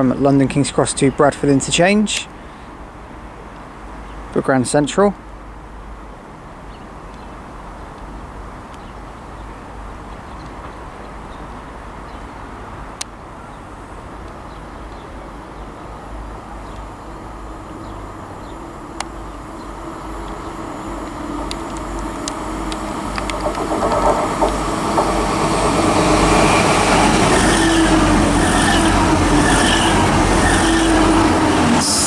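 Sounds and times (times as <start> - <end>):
train rumble and engine: 0.0 - 32.0
sharp clicks: 16.6 - 31.2.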